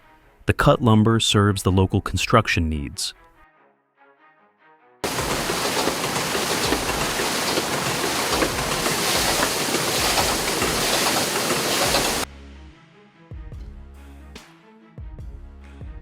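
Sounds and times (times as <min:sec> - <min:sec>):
rushing water: 0:05.0 - 0:12.3.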